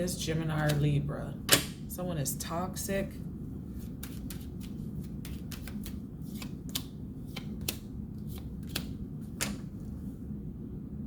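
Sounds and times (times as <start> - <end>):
cards shuffled and snapping: 3.8 - 9.7.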